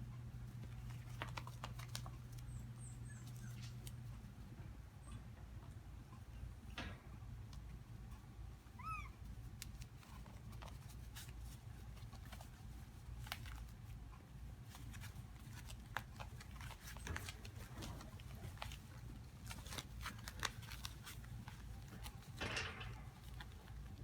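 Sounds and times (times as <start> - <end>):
steady low hum: 0.0 - 16.4
puppy whimpering: 2.5 - 3.9, 8.8 - 9.3.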